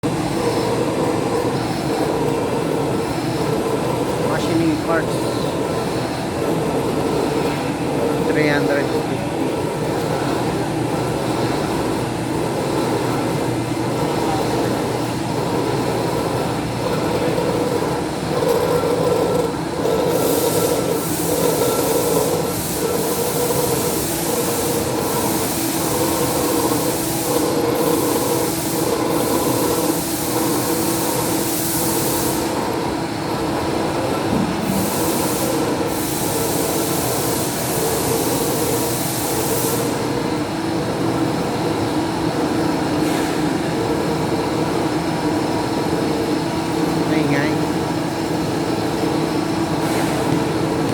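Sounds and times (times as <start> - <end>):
machine tool pulsing hum: 0.0 - 50.9.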